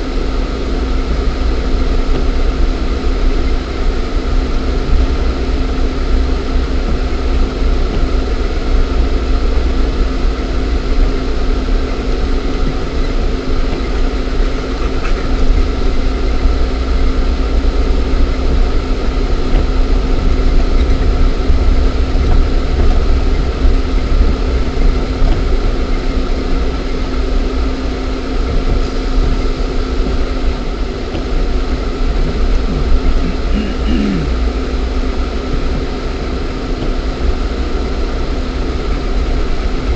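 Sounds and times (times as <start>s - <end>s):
car engine rumbling: 0.0s - 39.9s.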